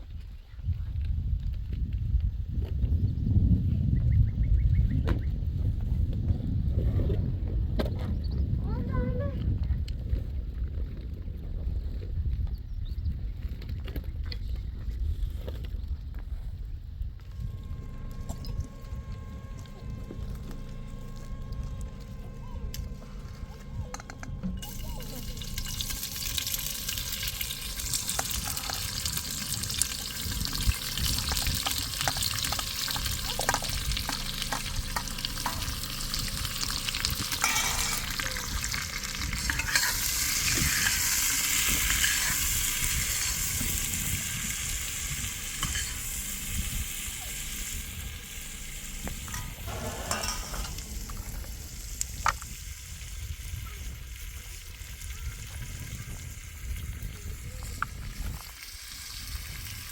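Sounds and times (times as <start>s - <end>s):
food sizzling in a pan: 23.5s - 59.9s.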